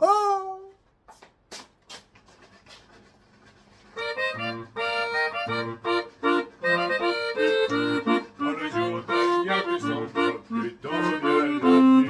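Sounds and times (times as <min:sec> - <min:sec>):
barrel organ playing a tune: 0:04.0 - 0:12.0.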